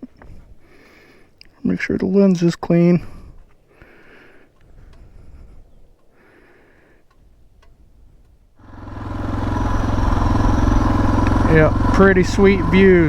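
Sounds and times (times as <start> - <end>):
huffs of breath: 0.1 - 1.4, 3.0 - 7.2
faint clicks: 3.8 - 8.4
single-cylinder motorcycle engine: 8.6 - 13.0.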